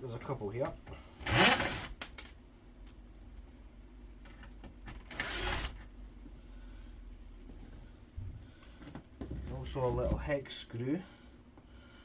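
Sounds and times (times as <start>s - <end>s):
cordless screwdriver running: 1.3s - 1.9s, 5.1s - 5.8s.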